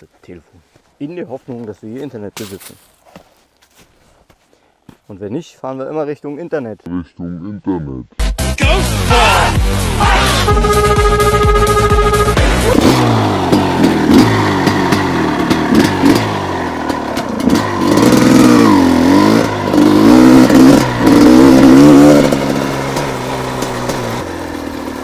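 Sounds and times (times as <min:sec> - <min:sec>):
two-stroke motorcycle engine revving: 0:08.8 - 0:25.0.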